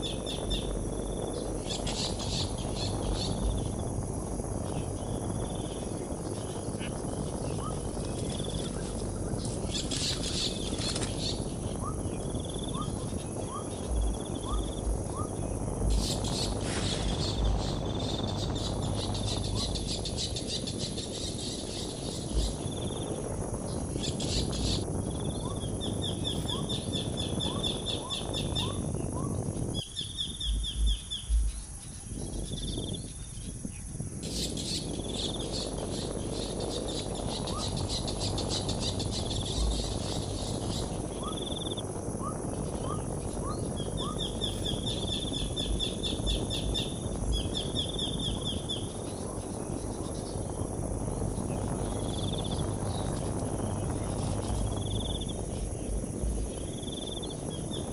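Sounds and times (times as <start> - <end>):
buzzy insect-like trills: 0.0 - 57.9
small birds chirping: 0.0 - 57.9
low thumps: 0.7 - 20.7, 21.9 - 34.0.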